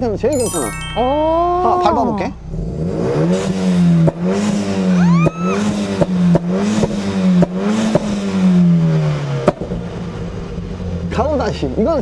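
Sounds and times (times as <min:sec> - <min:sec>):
car engine revving: 0:02.2 - 0:11.8
exhaust pops: 0:05.2 - 0:08.3, 0:09.4 - 0:09.9.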